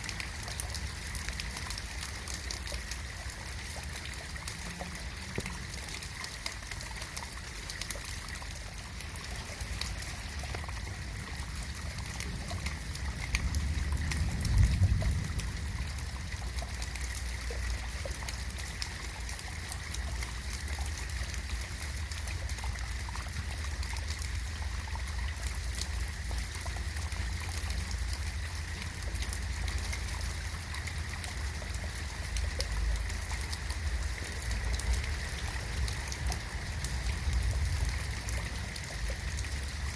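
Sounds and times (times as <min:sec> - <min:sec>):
rain falling and dripping: 0:00.0 - 0:39.9
low rumble: 0:12.2 - 0:17.0.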